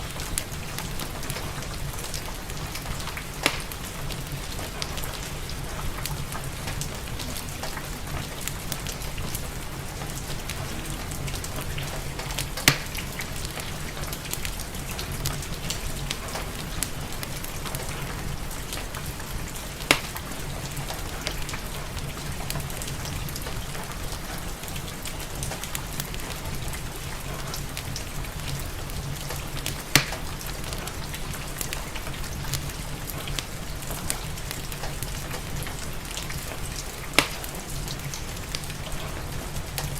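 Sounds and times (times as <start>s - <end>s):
steady rain: 0.0s - 39.9s
wood fire crackling: 0.0s - 39.9s
sharp fire pops: 2.1s - 5.1s, 11.8s - 13.7s, 19.8s - 20.3s, 29.7s - 30.3s, 37.1s - 37.6s.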